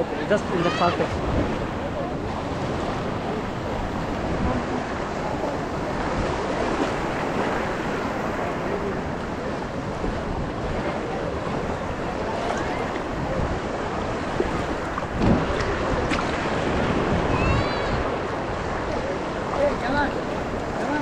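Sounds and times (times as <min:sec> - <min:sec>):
sea surf washing: 0:00.0 - 0:21.0
wind buffeting microphone: 0:00.0 - 0:21.0
water splash: 0:14.2 - 0:18.2.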